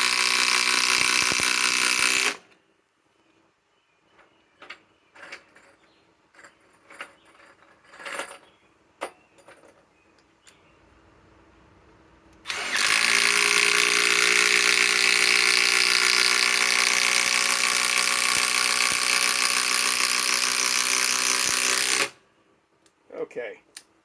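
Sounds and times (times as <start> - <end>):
impact driver hammering: 12.5 - 22.2.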